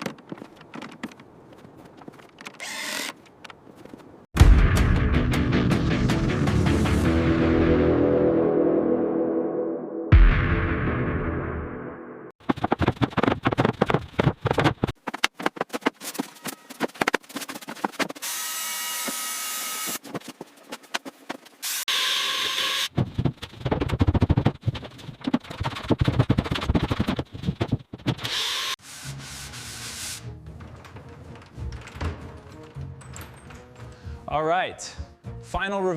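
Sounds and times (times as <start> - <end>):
power tool whirring: 2.6 - 3.2, 21.6 - 22.9, 28.3 - 28.8
rapid knocking and tapping: 12.4 - 18.2, 22.9 - 28.2.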